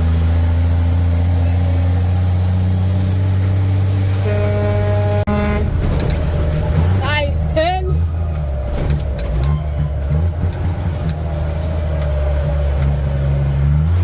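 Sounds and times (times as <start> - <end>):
truck engine droning: 0.0 - 14.0
vehicle horn: 4.1 - 6.2.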